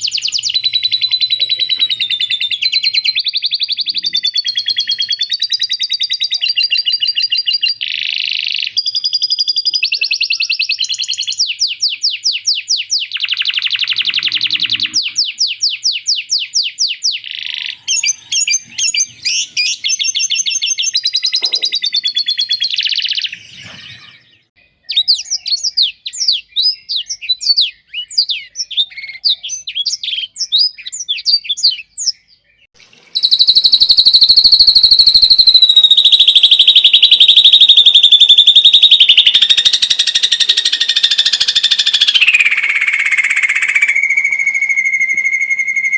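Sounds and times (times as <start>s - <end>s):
bird sharp chirps and whistles: 0.0s - 45.9s
songbirds fast harsh trills: 17.1s - 26.8s, 31.8s - 45.9s.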